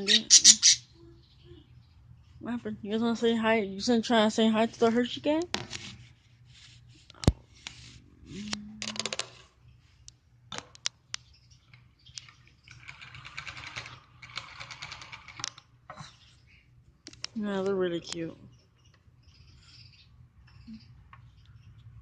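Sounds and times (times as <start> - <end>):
small birds chattering: 0.0 - 4.2, 15.9 - 22.0.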